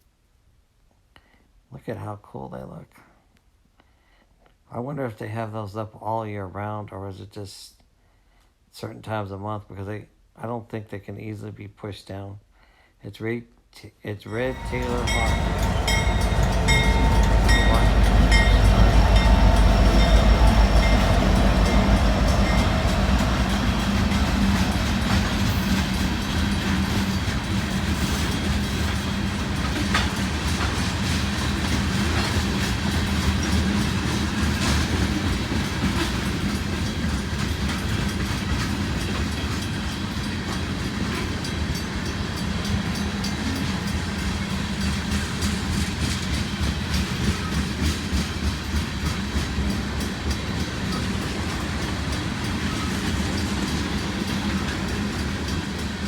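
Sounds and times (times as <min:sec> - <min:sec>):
freight train rumbling: 0:14.3 - 0:56.0
wheels clacking over rail joints: 0:14.4 - 0:56.0.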